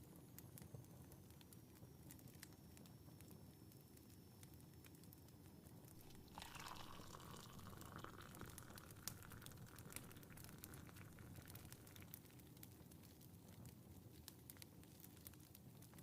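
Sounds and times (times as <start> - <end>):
fireplace crackling: 5.9 - 15.3
tea pouring into a cup: 6.0 - 12.6.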